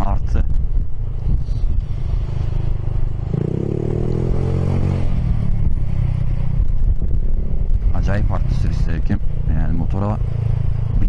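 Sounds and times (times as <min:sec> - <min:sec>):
road and wind noise: 0:00.0 - 0:11.0
scooter engine accelerating: 0:03.2 - 0:05.9.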